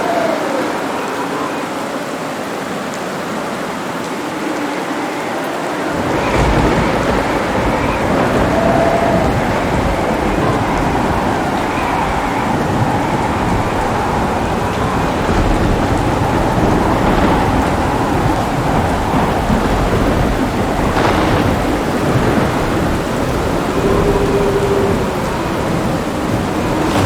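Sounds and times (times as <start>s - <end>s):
heavy rain: 0.0s - 27.0s
low rumble of thunder: 5.9s - 27.0s.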